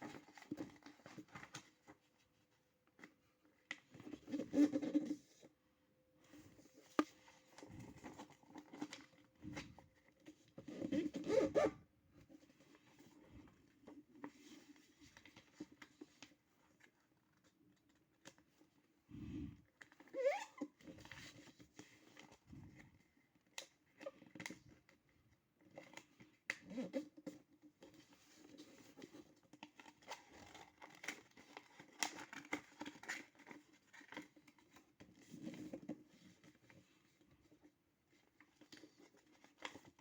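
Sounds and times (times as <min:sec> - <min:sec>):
paper rustling and creasing: 0:27.0 - 0:40.0.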